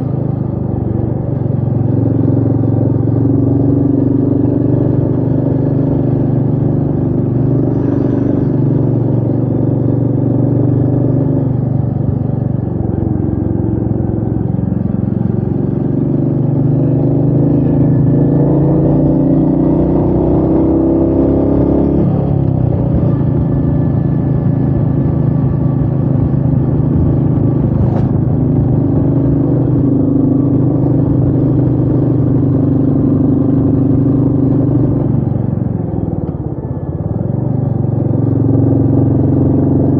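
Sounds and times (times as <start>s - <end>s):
motorcycle engine under load: 0.0s - 39.9s
wind rush: 22.6s - 29.6s.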